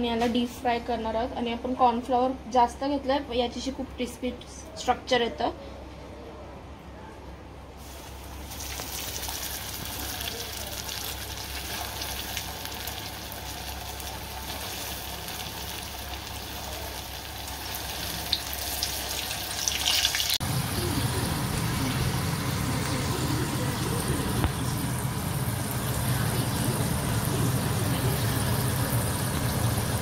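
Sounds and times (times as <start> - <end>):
chicken deep-frying in oil: 7.8 - 30.0.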